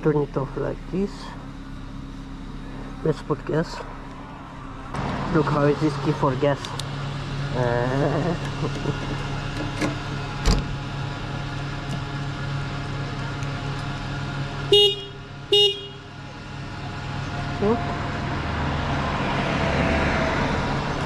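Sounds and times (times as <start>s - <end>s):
vehicle horn toots: 14.7s - 16.1s.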